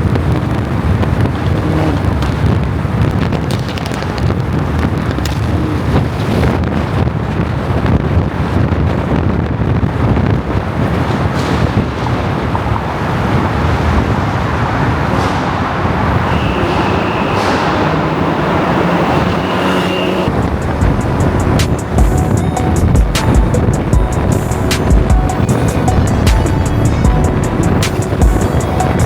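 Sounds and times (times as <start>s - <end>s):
tyre and wind noise: 0.0s - 29.0s
car engine running: 13.8s - 29.0s.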